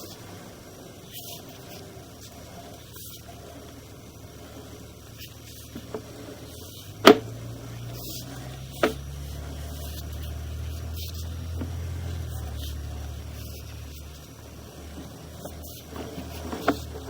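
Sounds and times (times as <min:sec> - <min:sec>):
low steady hum: 0:00.0 - 0:17.0
sharp clicks and knocks: 0:06.8 - 0:07.4, 0:08.7 - 0:09.1.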